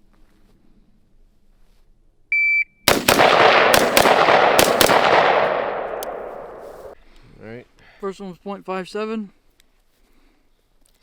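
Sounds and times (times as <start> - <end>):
shot timer beep: 2.3 - 2.8
gunshots with heavy echo: 2.9 - 7.0.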